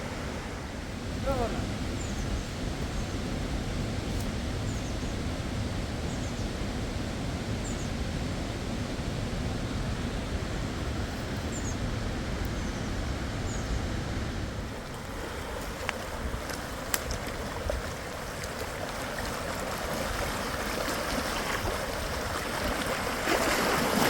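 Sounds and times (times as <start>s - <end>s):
fast-flowing river: 14.5s - 24.0s.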